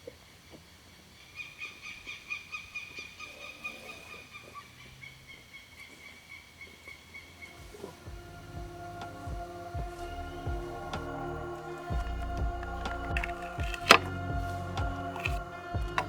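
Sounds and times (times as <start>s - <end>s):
background music with a beat: 7.6s - 16.0s.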